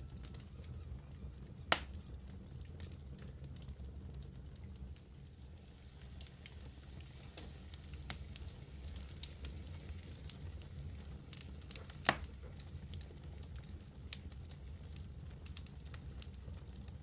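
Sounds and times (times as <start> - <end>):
fire crackles: 0.0 - 17.0
wood fire roaring: 0.0 - 17.0
loud pop from fire: 1.7 - 2.1, 11.3 - 13.2.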